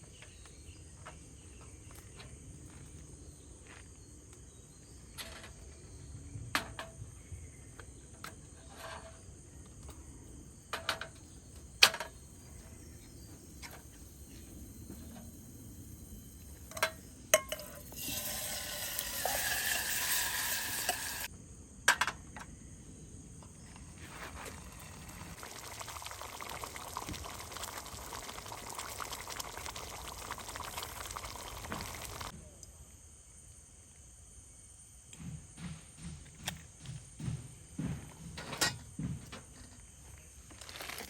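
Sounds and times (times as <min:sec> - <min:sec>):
liquid pouring: 0:17.6 - 0:21.3, 0:24.5 - 0:32.3.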